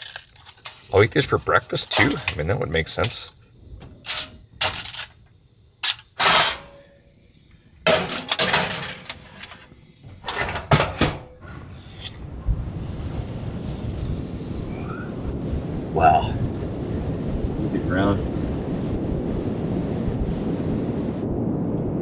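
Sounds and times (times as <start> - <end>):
steady hissing rush: 0.6 - 21.6
cookware knocking and clattering: 7.9 - 9.6, 10.2 - 11.6.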